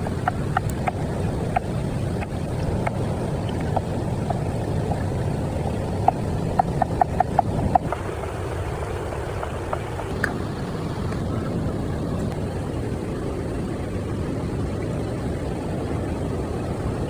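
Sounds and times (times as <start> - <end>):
waterfall and river roar: 0.0 - 17.0.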